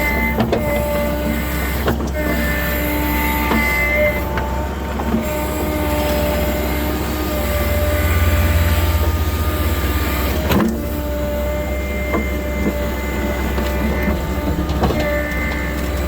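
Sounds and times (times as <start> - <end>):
diesel engine deep rumble: 0.0 - 16.0
hydraulic whine: 0.0 - 16.0.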